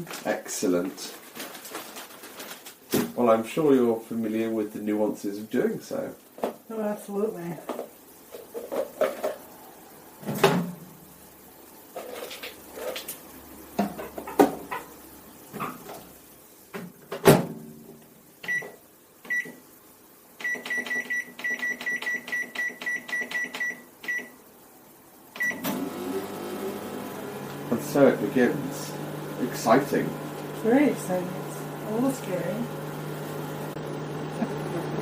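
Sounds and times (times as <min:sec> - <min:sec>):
microwave control panel beeping: 0:20.4 - 0:24.4, 0:25.4 - 0:25.9.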